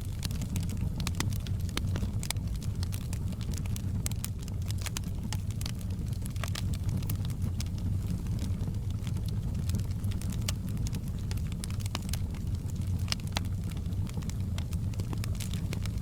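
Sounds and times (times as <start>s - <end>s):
log fire crackling and popping: 0.0s - 16.0s.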